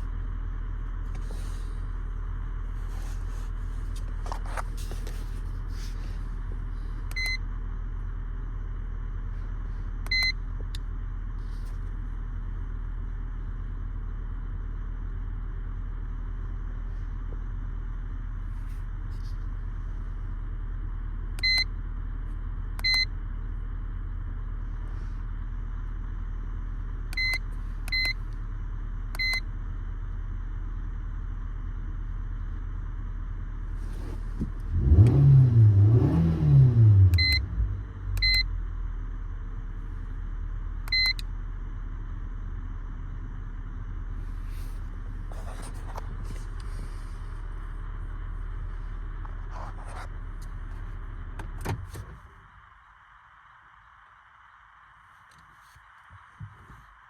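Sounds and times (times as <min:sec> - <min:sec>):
car engine revving: 0:33.8 - 0:38.3.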